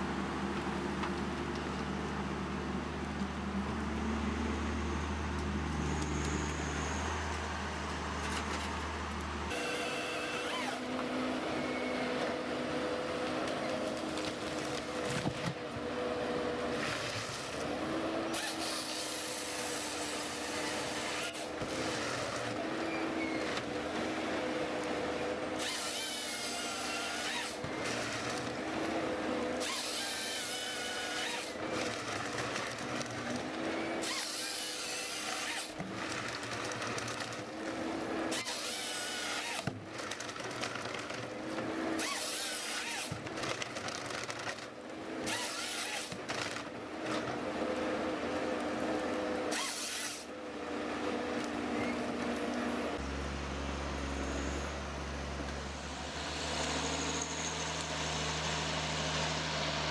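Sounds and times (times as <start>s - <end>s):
low engine hum: 0.0s - 10.1s, 50.4s - 59.9s
power tool motor whining: 9.5s - 11.0s, 25.3s - 28.5s, 38.3s - 39.7s, 41.9s - 43.2s.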